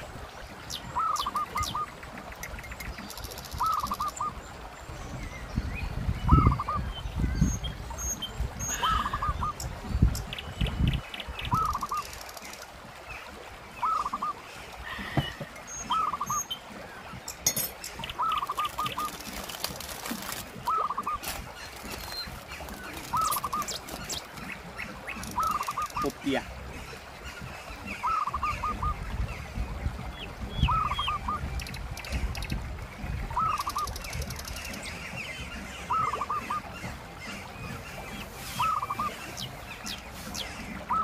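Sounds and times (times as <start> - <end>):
bird calling: 0.6 - 4.4, 6.2 - 9.7, 10.8 - 12.6, 13.8 - 29.0, 30.5 - 32.5, 33.3 - 41.0
river rushing: 11.2 - 41.0.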